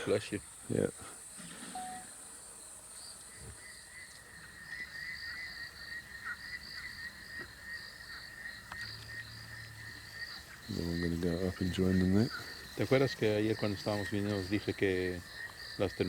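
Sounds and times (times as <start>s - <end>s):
warbling insect trill: 1.4s - 2.3s
high pulsing call: 1.7s - 2.1s.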